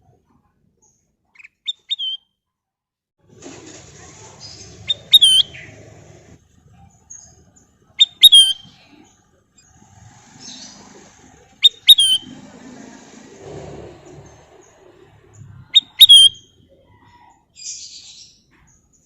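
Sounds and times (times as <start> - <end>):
bird whistled calls: 1.6 - 2.3, 4.9 - 5.7, 8.0 - 8.7, 11.6 - 12.4, 15.7 - 16.6.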